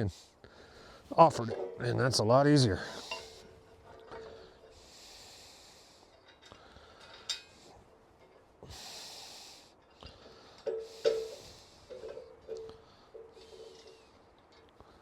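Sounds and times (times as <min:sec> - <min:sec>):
person breathing: 0:00.0 - 0:01.1, 0:02.8 - 0:07.9, 0:08.6 - 0:14.2.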